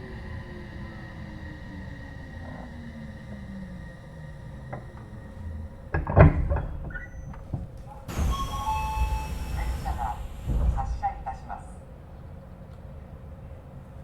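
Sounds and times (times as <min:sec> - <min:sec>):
electric train motor whine: 0:00.0 - 0:11.9
low rumble: 0:00.0 - 0:12.0
loud clunks: 0:04.7 - 0:11.8
short tones: 0:06.9 - 0:11.8
air hiss: 0:07.4 - 0:11.8.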